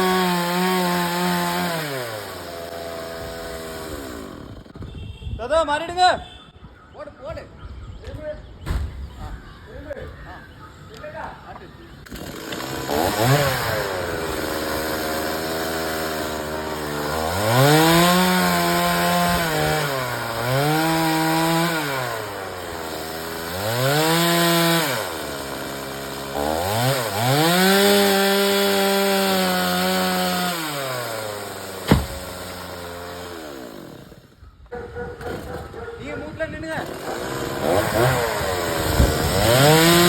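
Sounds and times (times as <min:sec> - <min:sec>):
chainsaw cutting wood: 0:00.0 - 0:04.8, 0:12.1 - 0:34.4, 0:36.8 - 0:40.0
sharp crack: 0:31.8 - 0:32.5.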